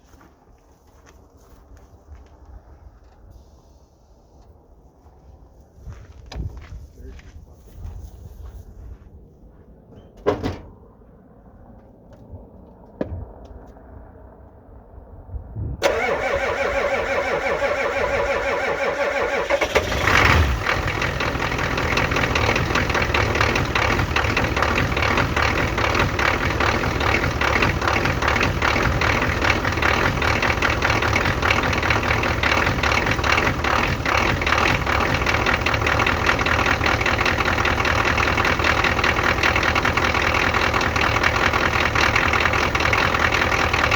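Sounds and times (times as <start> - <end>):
diesel engine clatter: 15.8 - 43.9
diesel engine cranked by starter: 15.8 - 43.9.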